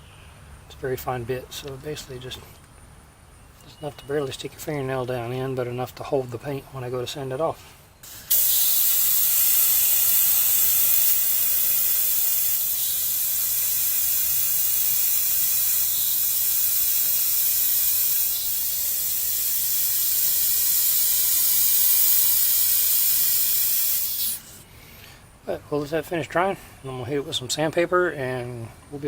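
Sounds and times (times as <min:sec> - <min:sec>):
airbrush spraying air hiss: 0:08.0 - 0:24.7.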